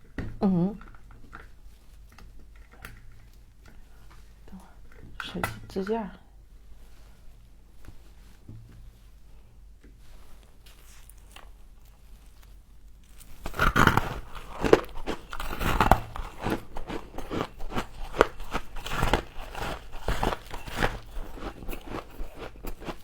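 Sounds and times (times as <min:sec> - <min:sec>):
person chewing crunchy frost: 0:10.7 - 0:23.0.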